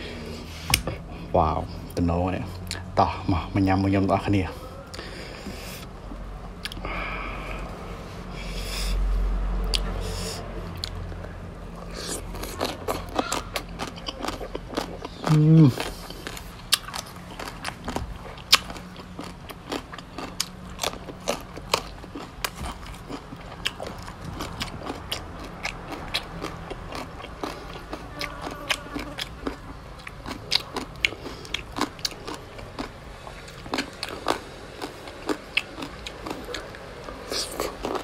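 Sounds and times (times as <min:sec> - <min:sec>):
person chewing and crunching: 0:00.0 - 0:38.0.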